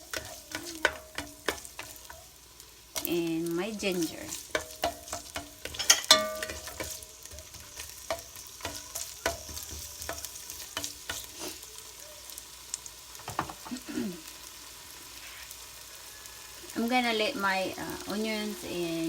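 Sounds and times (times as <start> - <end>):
onions sizzling in oil: 0.0 - 19.0
utensil knocking against pan: 4.5 - 11.2.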